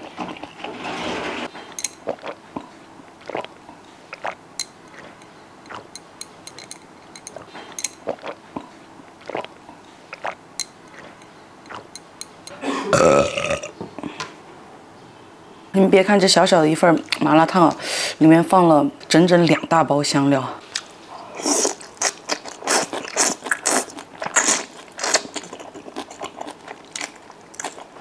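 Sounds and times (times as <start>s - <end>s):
person chewing food: 1.5s - 13.7s, 20.7s - 28.0s.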